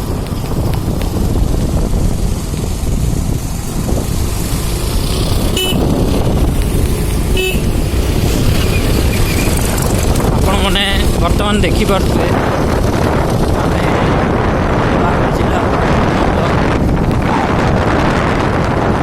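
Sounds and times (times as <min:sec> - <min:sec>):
road vehicle rumble: 0:00.0 - 0:19.0
wind on microphone: 0:00.0 - 0:19.0
short horn toots: 0:05.5 - 0:05.9, 0:07.4 - 0:07.7.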